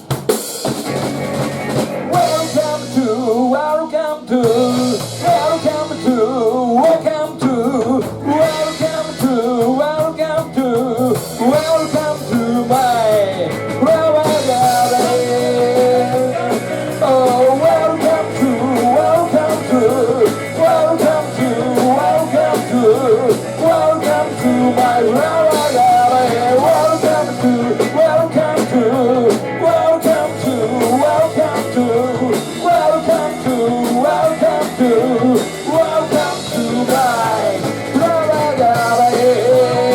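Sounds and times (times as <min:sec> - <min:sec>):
rock band playing: 0:00.0 - 0:39.9
person singing: 0:02.1 - 0:39.9.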